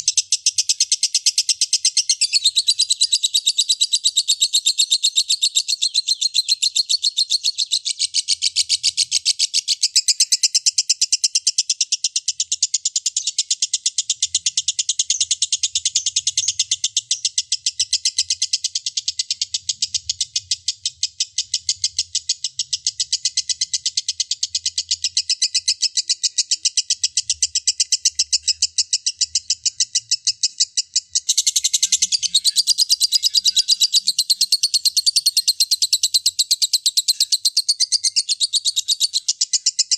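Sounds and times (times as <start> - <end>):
lovebird shrill chattering song: 0.0 - 13.5, 14.5 - 39.9.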